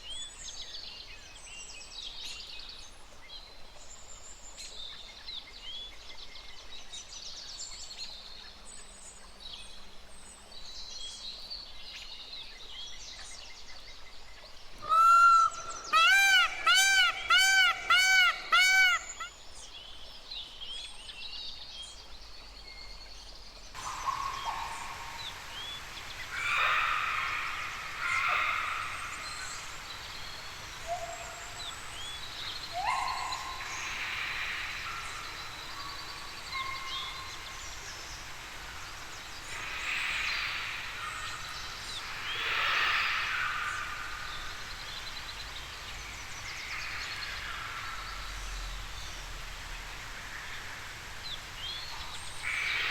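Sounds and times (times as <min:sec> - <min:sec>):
outdoor background hiss: 0:00.0 - 0:52.9
birds calling and chirping: 0:14.8 - 0:19.7, 0:23.8 - 0:52.9.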